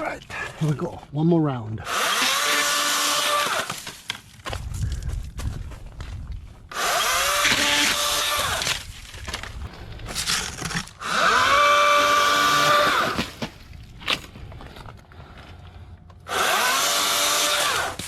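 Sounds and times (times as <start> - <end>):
battery chainsaw motor whining: 1.8 - 3.8, 6.7 - 8.8, 10.3 - 13.2, 16.3 - 18.0.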